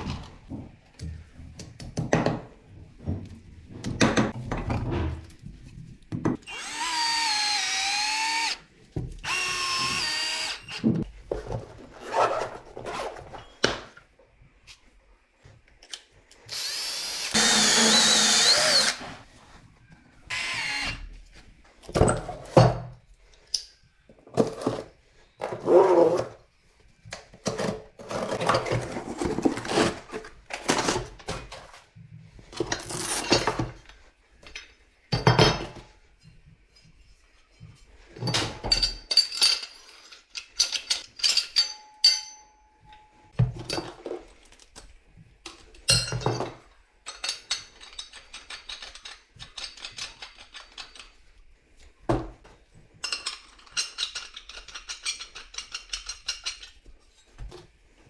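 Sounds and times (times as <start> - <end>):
power tool running: 6.5 - 8.6, 16.5 - 19.1
tools and pipe clanking: 37.6 - 44.4, 45.8 - 51.1.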